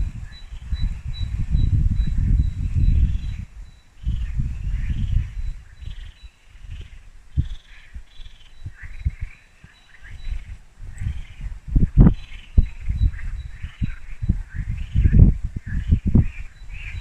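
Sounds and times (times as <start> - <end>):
low rumbles: 0.0 - 5.7
birds chirping: 0.0 - 17.0.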